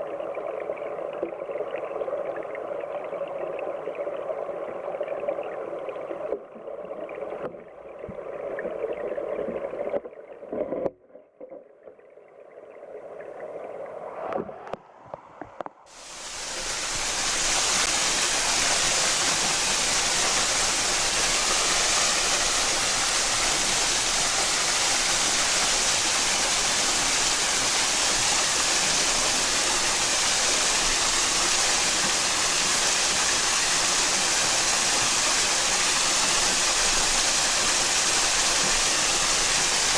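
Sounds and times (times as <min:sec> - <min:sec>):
stream rushing: 0:15.9 - 0:39.9.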